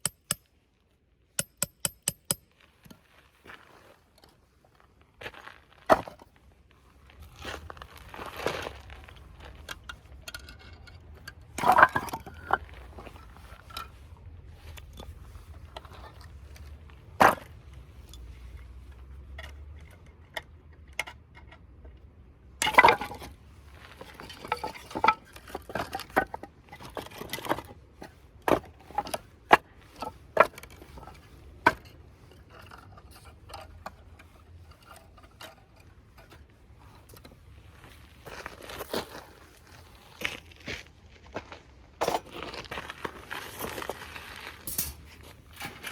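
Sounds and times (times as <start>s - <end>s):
camping gear knocking and clinking: 0.0s - 0.7s, 1.3s - 4.6s, 8.9s - 22.0s, 22.6s - 39.8s, 42.0s - 43.9s.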